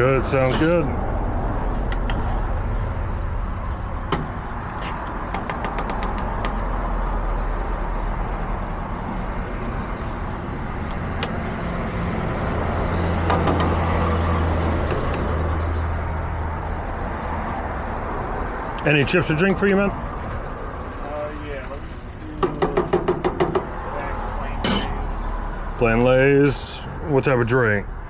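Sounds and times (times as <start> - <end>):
street traffic: 0.0 - 28.0
low engine hum: 0.9 - 18.7.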